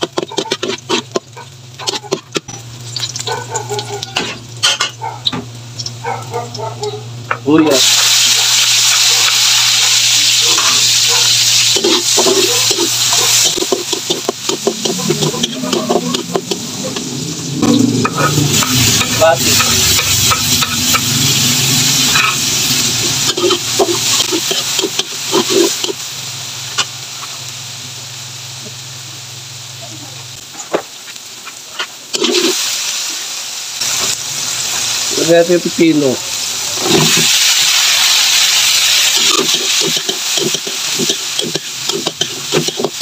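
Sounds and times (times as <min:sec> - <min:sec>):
vegetables sizzling in hot oil: 0:00.0 - 0:43.0
spoon clinking and scraping: 0:10.4 - 0:17.0, 0:22.0 - 0:26.0, 0:39.1 - 0:43.0.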